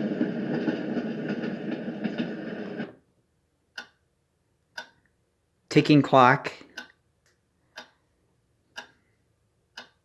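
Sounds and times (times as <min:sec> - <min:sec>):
recorded train rushing noise: 0:00.0 - 0:03.0
clock tick: 0:03.7 - 0:05.2, 0:05.8 - 0:10.0.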